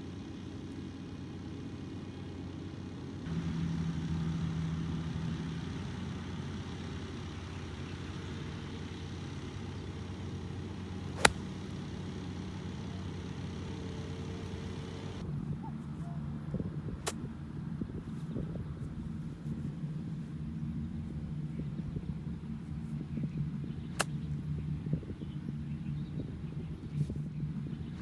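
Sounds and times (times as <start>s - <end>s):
low engine hum: 0.0s - 28.0s
golf club striking ball: 11.0s - 11.9s.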